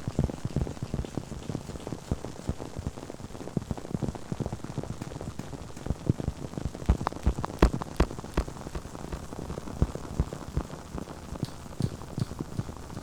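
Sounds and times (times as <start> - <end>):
small crackles and taps: 0.0 - 13.0.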